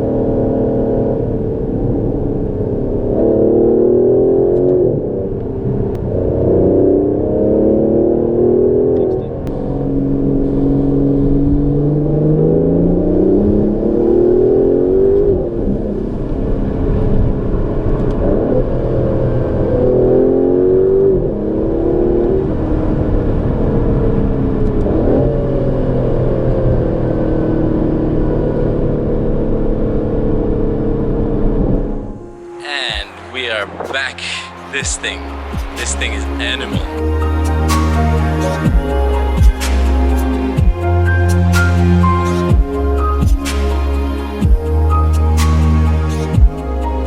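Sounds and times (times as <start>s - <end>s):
car engine accelerating through gears: 0.0s - 32.6s.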